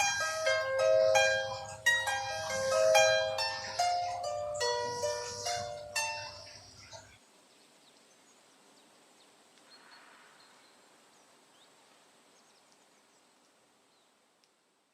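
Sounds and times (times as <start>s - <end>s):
faint high chirps: 0.0s - 7.2s
faint steady hiss: 0.0s - 14.9s.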